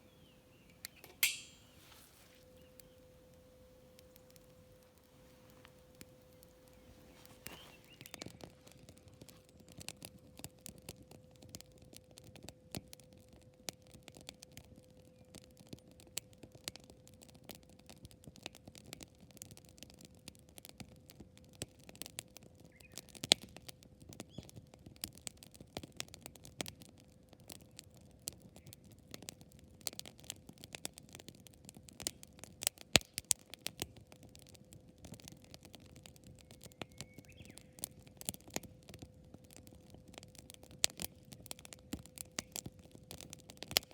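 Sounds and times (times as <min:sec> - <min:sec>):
campfire crackling: 0:00.0 - 0:43.9
sharp fire pops: 0:00.6 - 0:02.9, 0:32.0 - 0:33.9.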